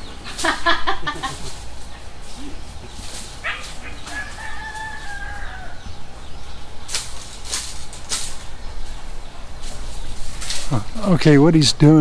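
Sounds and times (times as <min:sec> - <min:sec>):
rooster crowing: 0:02.5 - 0:06.4.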